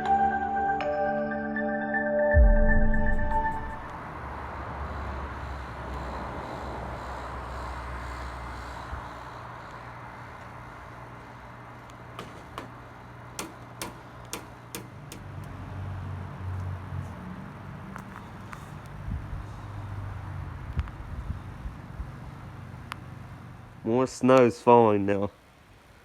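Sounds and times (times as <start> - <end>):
low rumble: 2.4 - 10.4
snowstorm noise: 3.4 - 13.2
sharp ticks: 13.4 - 15.6.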